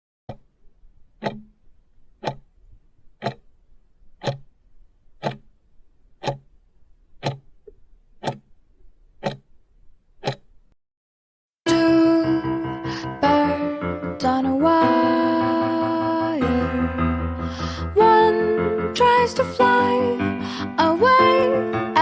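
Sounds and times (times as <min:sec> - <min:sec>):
clock ticking: 0:00.3 - 0:05.6, 0:06.2 - 0:06.6, 0:07.2 - 0:08.6, 0:09.2 - 0:09.5, 0:10.2 - 0:10.6.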